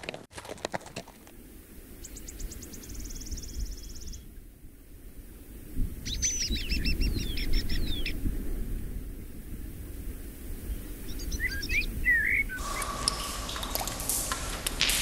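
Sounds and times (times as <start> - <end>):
low rumble: 12.6 - 15.0.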